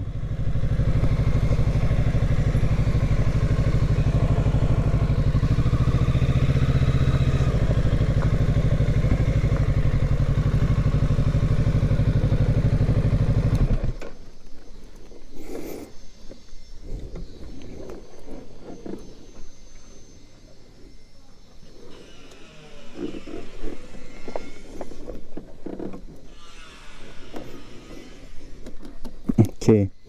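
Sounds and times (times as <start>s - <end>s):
motorcycle engine idling: 0.0s - 14.7s.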